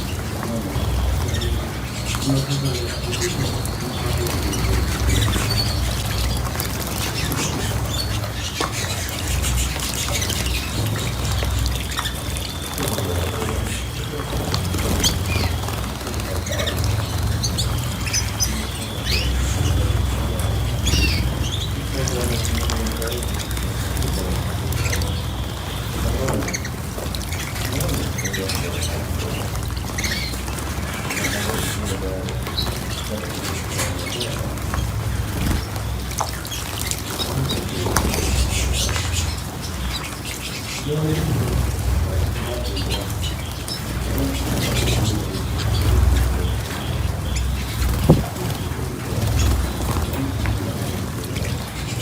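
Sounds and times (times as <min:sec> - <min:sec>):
small birds chirping: 0:00.0 - 0:52.0
wings fluttering: 0:00.0 - 0:52.0.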